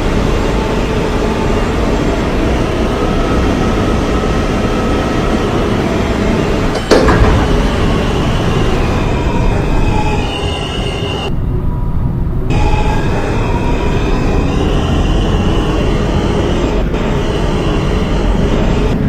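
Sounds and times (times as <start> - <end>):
faint whine: 0.0 - 19.0
subway wheels rumbling on rails: 0.0 - 19.0
sharp bang: 6.8 - 8.8.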